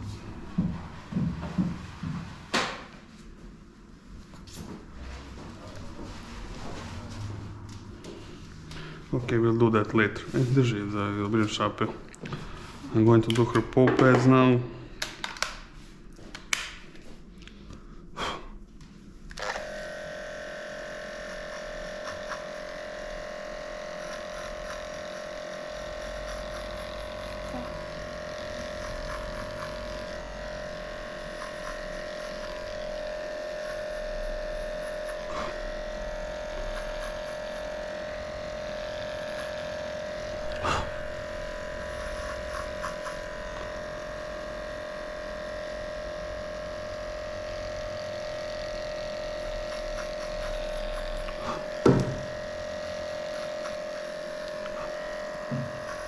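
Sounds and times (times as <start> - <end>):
electric pet clipper running: 19.3 - 56.0.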